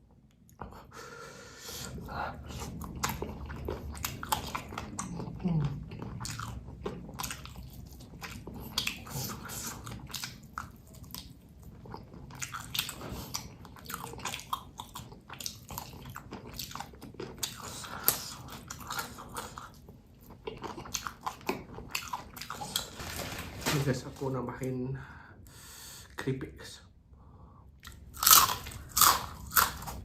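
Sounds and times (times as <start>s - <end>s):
wet chewing and crunching: 1.8s - 23.1s, 27.8s - 30.0s.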